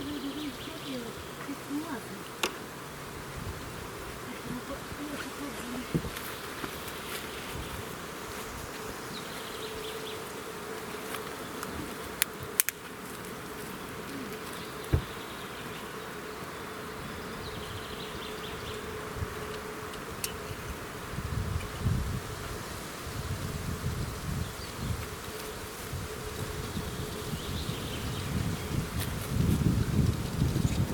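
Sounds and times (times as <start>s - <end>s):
insect buzzing: 0.0s - 30.9s.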